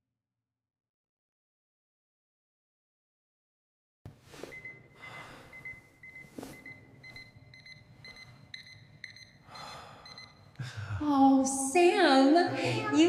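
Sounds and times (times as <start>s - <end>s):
patient monitor beeping: 4.4s - 10.6s.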